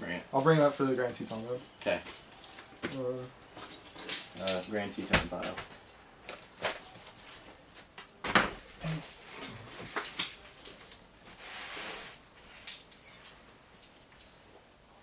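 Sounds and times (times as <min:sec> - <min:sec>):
climbing gear knocks and clinks: 0:00.6 - 0:06.0
short rustle: 0:08.6 - 0:14.4.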